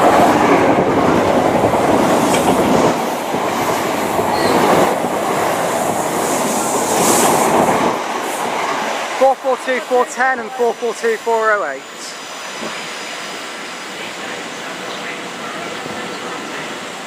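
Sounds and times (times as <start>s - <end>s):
train rumbling past: 0.0s - 17.0s
wheels clattering over rail joints: 0.7s - 5.5s.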